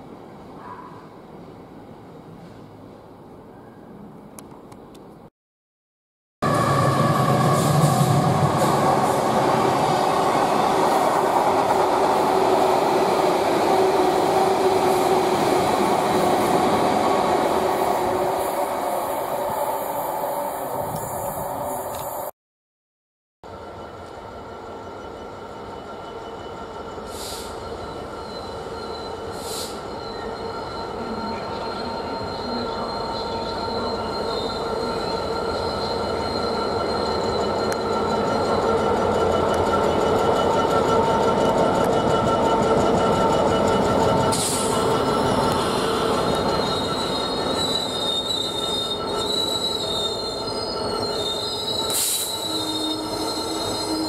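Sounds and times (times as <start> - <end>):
diesel locomotive engine: 6.4 - 22.3, 23.5 - 54.0
wagon wheels squealing: 25.6 - 54.0.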